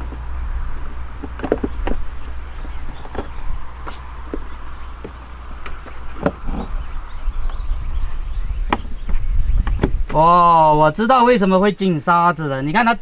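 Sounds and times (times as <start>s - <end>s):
light knocks and clicks: 0.0s - 6.8s
constant low rumble: 0.0s - 11.8s
insects chirring: 0.0s - 13.0s.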